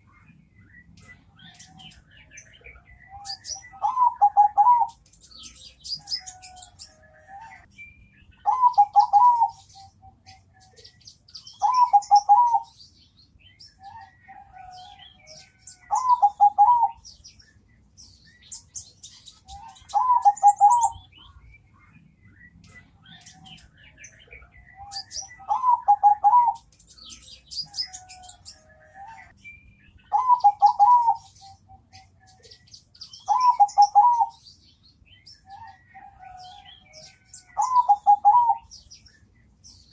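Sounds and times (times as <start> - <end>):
small birds chirping: 0.0 - 39.9
dove cooing: 3.0 - 5.0, 8.4 - 10.4, 11.6 - 12.7, 13.8 - 17.0, 19.5 - 21.0, 24.8 - 26.7, 30.1 - 32.1, 33.2 - 34.4, 35.5 - 38.7.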